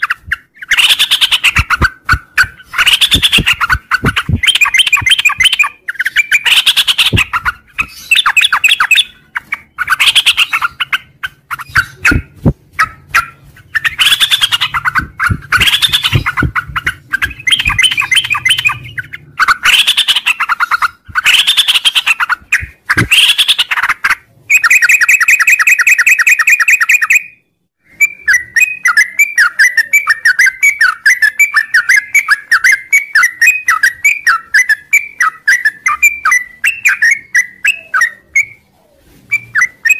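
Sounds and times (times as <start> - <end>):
rapid bird chattering: 0.0 - 27.2
bird trill: 0.0 - 38.6
bird singing warbled phrases: 0.0 - 38.7, 39.3 - 39.9.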